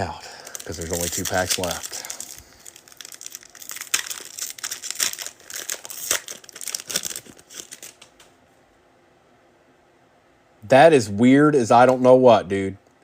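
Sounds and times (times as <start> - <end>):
foil wrapper tearing and crinkling: 0.3 - 8.1.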